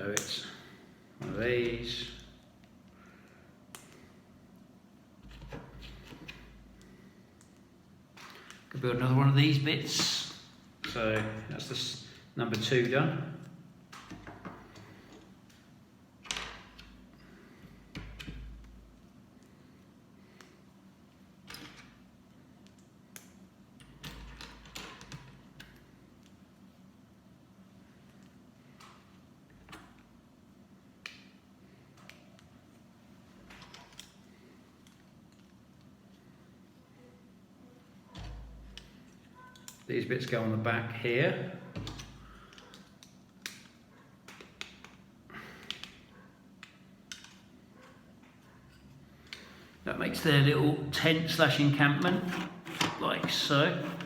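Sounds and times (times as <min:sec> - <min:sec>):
plastic pieces clicking together: 0:46.6 - 0:47.5.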